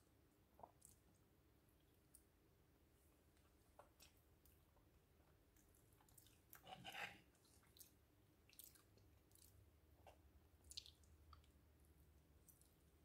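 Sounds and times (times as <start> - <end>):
fork scraping in a bowl: 6.6 - 7.2.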